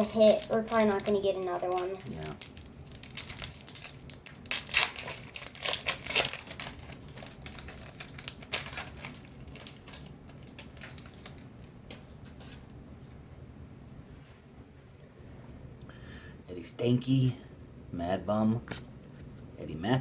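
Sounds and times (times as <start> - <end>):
plastic wrapper crinkling: 0.0 - 12.8.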